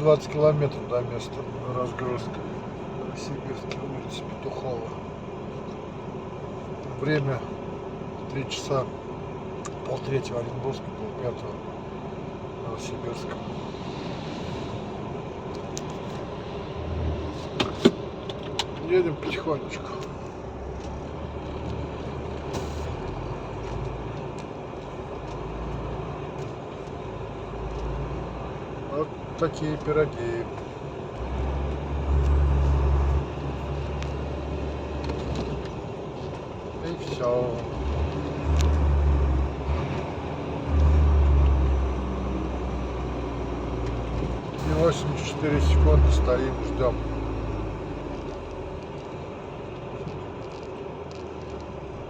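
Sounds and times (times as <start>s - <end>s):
truck engine humming: 10.6s - 52.0s.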